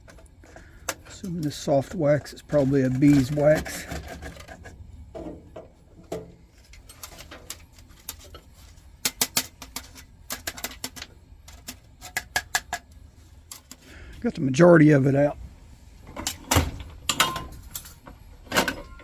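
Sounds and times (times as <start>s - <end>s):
metallic clicks and scrapes: 0.0s - 4.9s.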